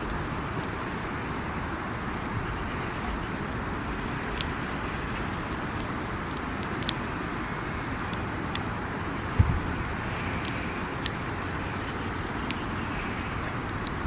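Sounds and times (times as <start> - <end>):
campfire crackling and popping: 0.1 - 14.0
fire hissing: 7.0 - 14.0.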